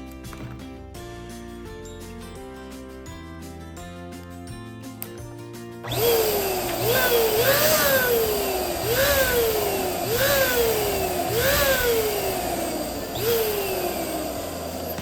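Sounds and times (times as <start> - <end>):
electric balloon pump blowing air: 5.8 - 15.0.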